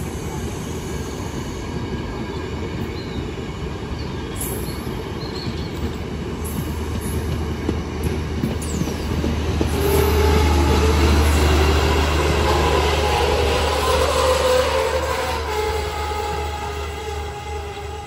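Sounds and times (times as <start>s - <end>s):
wheels rumbling on track: 3.8s - 18.0s.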